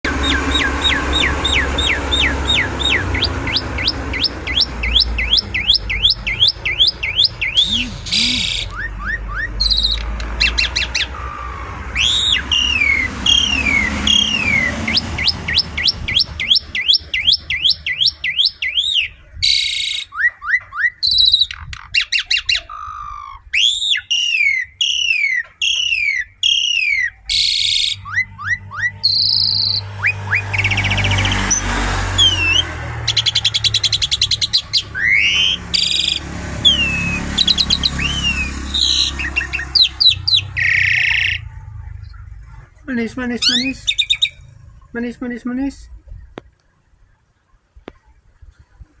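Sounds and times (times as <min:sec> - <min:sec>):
starling whistled song: 0:00.0 - 0:42.2, 0:43.4 - 0:44.5
harsh rasping bird calls: 0:00.0 - 0:45.1.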